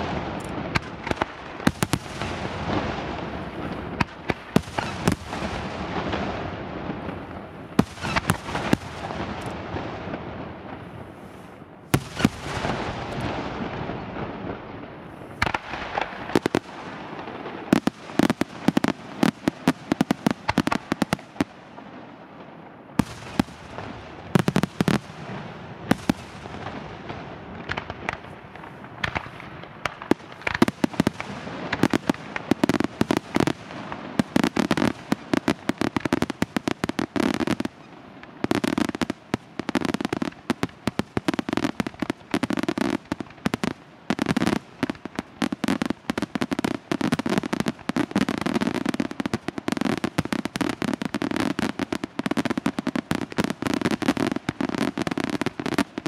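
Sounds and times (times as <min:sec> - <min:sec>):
fireworks bangs: 0:00.0 - 0:56.0.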